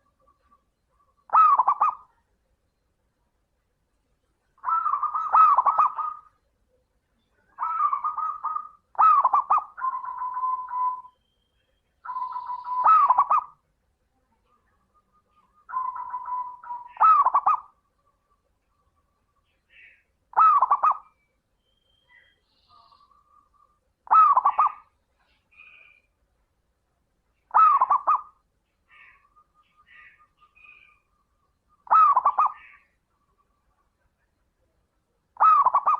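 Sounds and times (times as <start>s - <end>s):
dove cooing: 0.0s - 2.2s, 4.6s - 6.4s, 7.5s - 11.1s, 12.0s - 13.6s, 15.1s - 17.8s, 19.8s - 21.2s, 22.7s - 24.9s, 27.5s - 31.0s, 31.8s - 33.5s, 35.4s - 35.9s.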